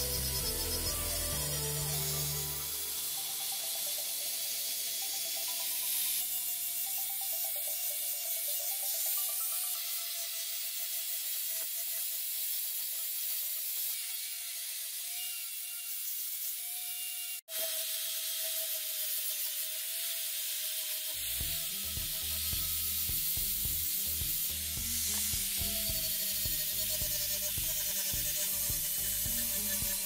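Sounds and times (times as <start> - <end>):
angle grinder grinding steel: 0.0 - 30.0
low pulsing sound: 21.2 - 30.0.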